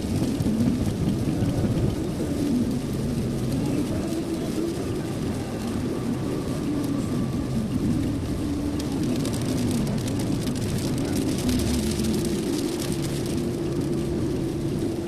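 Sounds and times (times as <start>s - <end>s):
car interior road noise: 0.0s - 15.0s
rain tapping on car: 0.0s - 15.0s.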